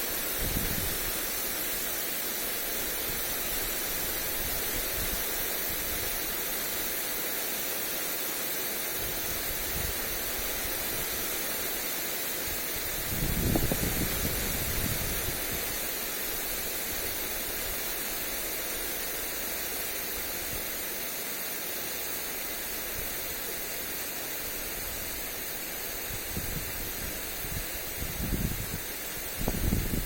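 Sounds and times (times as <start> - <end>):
lawn sprinkler hissing: 0.0 - 30.0
wind rumble on microphone: 0.3 - 1.2, 12.8 - 15.8, 26.0 - 30.0.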